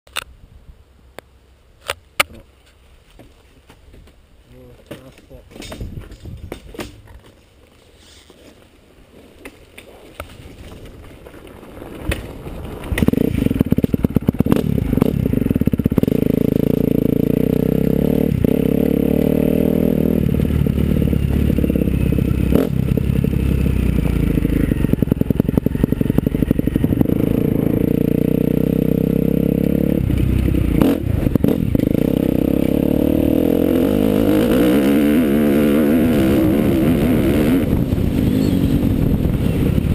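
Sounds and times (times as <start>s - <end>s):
motorbike engine running hard: 12.9s - 39.9s.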